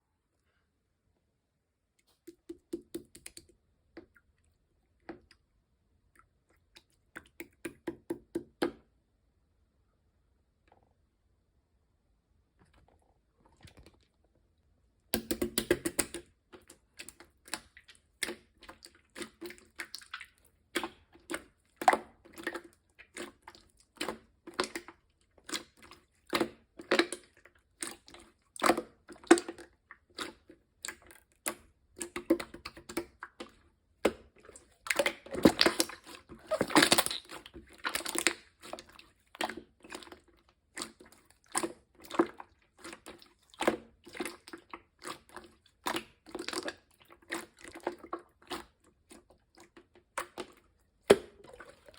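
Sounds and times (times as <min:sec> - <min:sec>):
slime squished by hand: 0:15.2 - 0:51.9.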